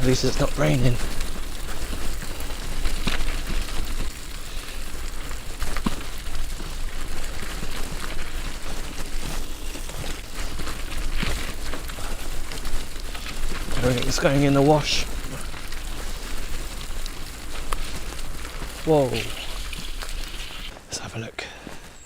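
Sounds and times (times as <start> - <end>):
bicycle tyres rolling through mud: 0.0 - 22.0.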